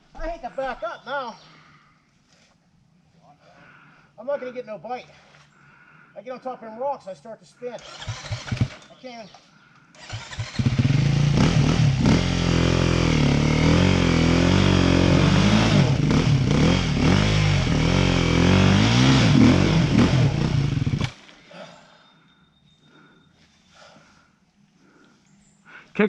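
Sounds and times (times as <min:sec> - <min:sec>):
dirt bike engine revving: 0:07.8 - 0:08.9, 0:10.0 - 0:21.2.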